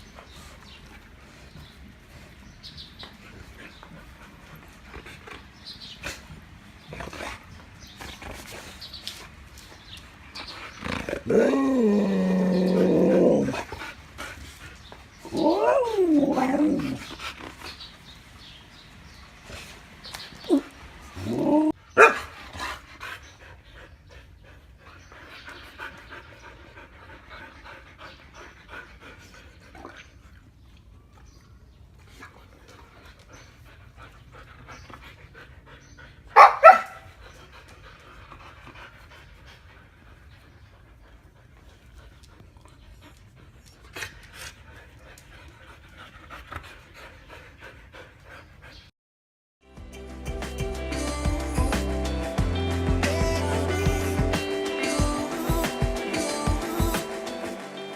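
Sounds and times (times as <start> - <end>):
dog howling call: 15.3 - 17.0
dog panting: 22.3 - 30.6, 31.9 - 48.9.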